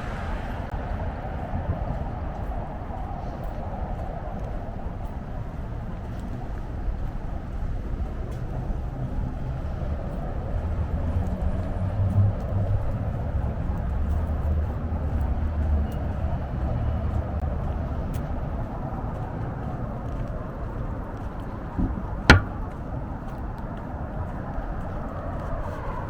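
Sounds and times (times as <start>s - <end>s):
passing road vehicle rumble: 0.0s - 4.9s, 5.5s - 26.0s
sharp click: 21.8s - 22.7s.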